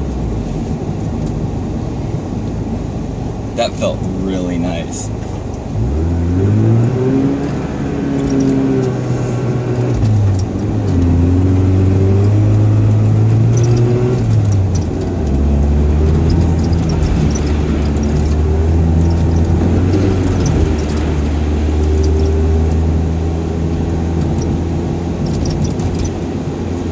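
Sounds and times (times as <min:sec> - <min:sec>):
rotary engine revving: 0:05.5 - 0:26.9.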